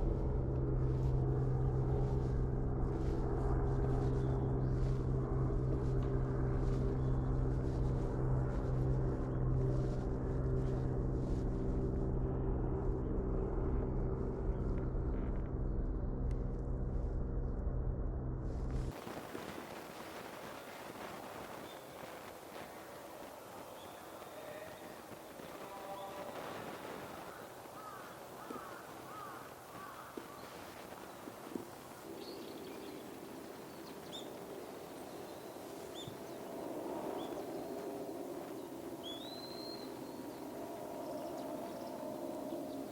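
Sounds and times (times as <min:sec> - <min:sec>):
low motor drone: 0:00.0 - 0:19.0, 0:32.3 - 0:42.9
low background hum: 0:00.0 - 0:19.8
short falling bird calls: 0:25.8 - 0:30.6
thin high-pitched bird calls: 0:39.0 - 0:40.4.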